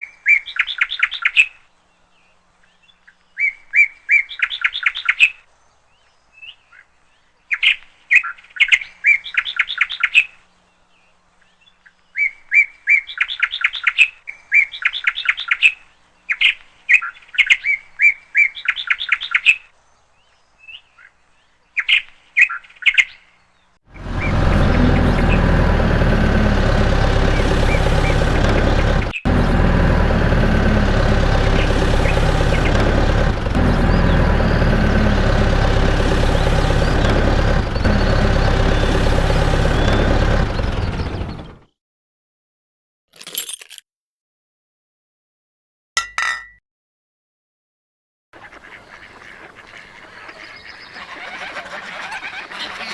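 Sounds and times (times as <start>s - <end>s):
songbird chirping: 24.0s - 41.6s
steady engine-like running noise: 24.0s - 41.6s.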